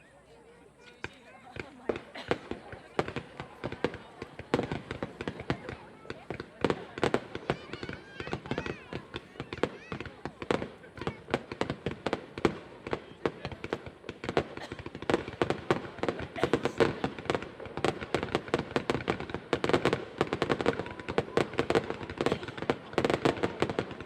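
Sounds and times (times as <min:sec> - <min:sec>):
fireworks bangs and crackles: 0:00.5 - 0:24.0.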